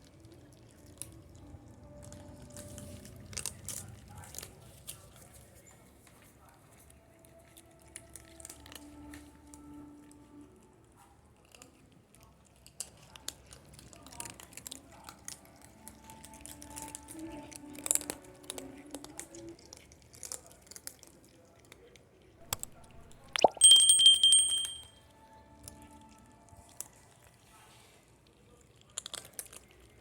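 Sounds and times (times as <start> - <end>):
cats crunching dry kibble: 2.0 - 9.3, 10.8 - 22.1, 26.6 - 30.0.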